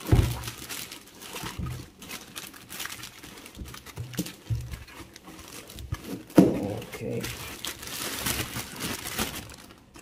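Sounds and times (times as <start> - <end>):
soft knocks and thuds: 0.0 - 0.5
packaging rustling and crinkling: 0.0 - 10.0.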